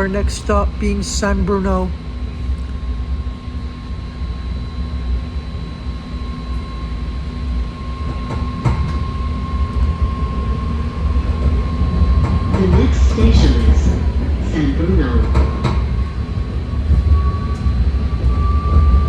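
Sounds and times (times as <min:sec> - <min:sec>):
high electric whine: 0:00.0 - 0:13.9
train wheels rumbling on rail: 0:04.3 - 0:19.0.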